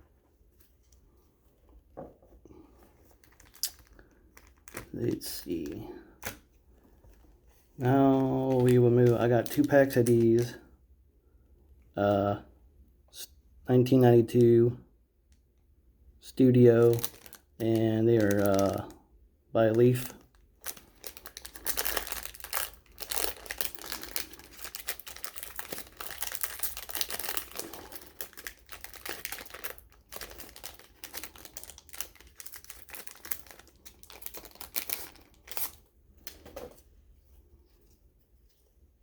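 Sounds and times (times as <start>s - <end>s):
foil wrapper crinkling: 3.1s - 6.4s, 7.9s - 10.6s, 16.8s - 18.9s, 19.6s - 36.4s.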